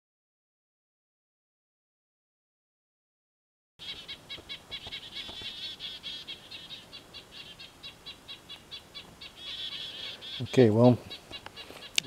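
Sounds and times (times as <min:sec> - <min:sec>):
bird chirping rapidly: 0:03.8 - 0:12.0.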